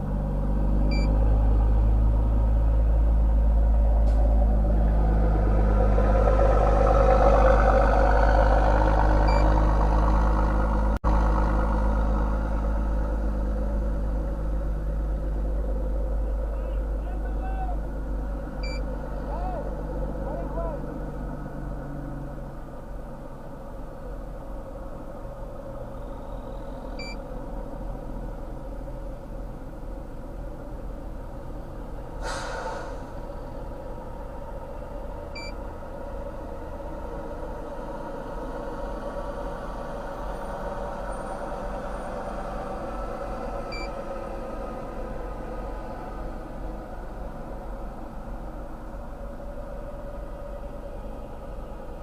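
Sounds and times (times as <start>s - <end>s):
vehicle engine idling: 0.0s - 52.0s
faint short beeps: 0.9s - 1.1s, 18.6s - 18.8s, 35.4s - 35.6s
short hiss: 32.2s - 33.2s.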